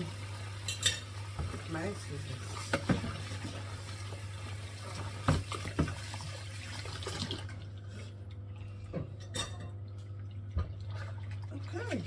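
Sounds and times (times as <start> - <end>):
water running from tap into sink: 0.0 - 7.7, 9.9 - 12.0.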